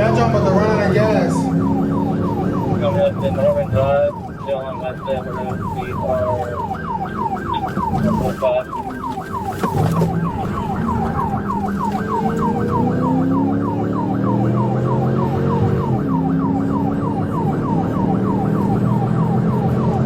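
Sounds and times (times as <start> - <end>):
vehicle engine accelerating: 0.0 - 3.8, 9.8 - 20.0
police siren yelping: 0.0 - 20.0.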